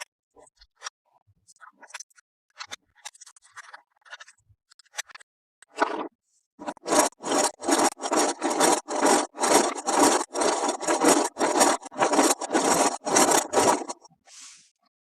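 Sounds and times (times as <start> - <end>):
rubbing strokes on hard surface: 6.6 - 14.6.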